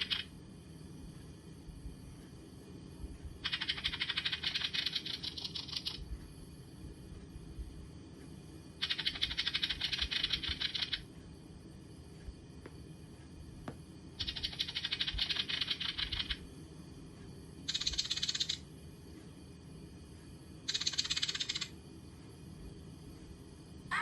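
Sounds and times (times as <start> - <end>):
fast rattling clicks: 20.7 - 21.7.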